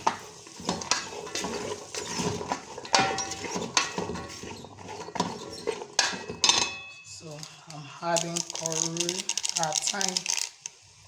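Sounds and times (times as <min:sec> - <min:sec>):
vegetables frying: 0:00.0 - 0:06.3, 0:08.0 - 0:11.0
spoon scraping a pot: 0:00.0 - 0:07.0.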